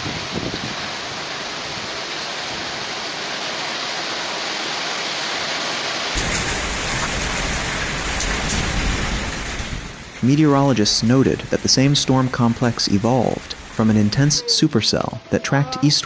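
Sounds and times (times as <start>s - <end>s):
heavy rain and hail: 0.0s - 14.9s
hailstones ticking: 6.1s - 13.8s.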